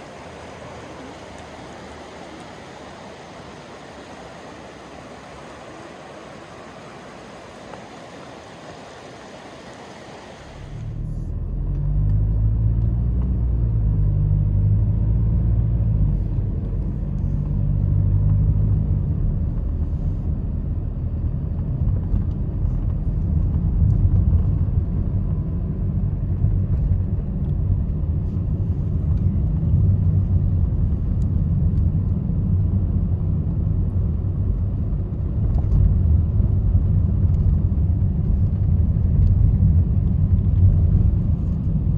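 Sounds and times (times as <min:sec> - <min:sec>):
steady hiss: 0:00.0 - 0:11.2
car engine and road noise: 0:00.0 - 0:41.9.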